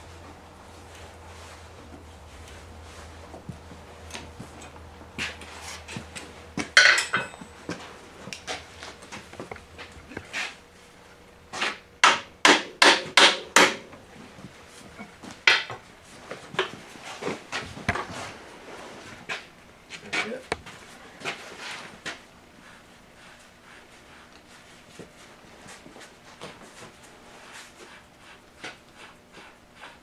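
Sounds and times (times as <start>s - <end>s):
hammer striking metal: 5.2s - 9.6s, 11.6s - 14.0s.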